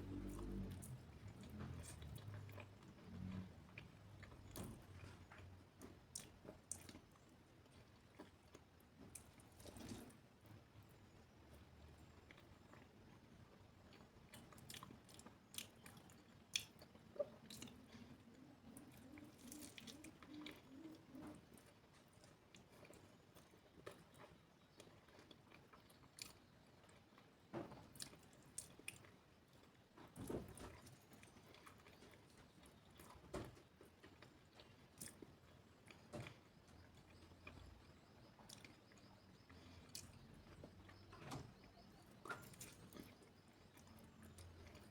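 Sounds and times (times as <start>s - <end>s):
faint low wavering hum: 0.0s - 2.6s
chewing and crunching food: 0.0s - 44.9s.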